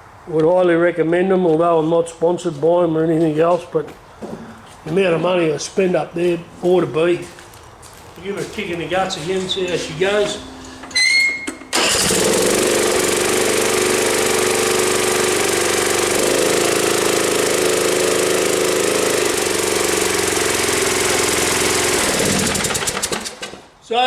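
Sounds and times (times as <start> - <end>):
mower engine starting and running: 9.1 - 23.7.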